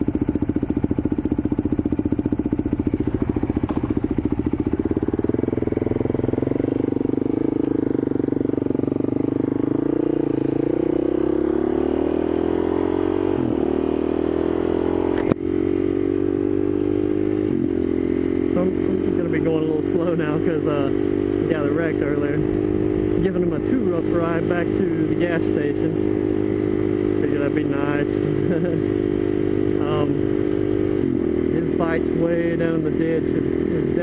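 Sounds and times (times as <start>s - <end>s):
motorcycle engine running: 0.0s - 34.0s
sharp click: 15.1s - 15.4s.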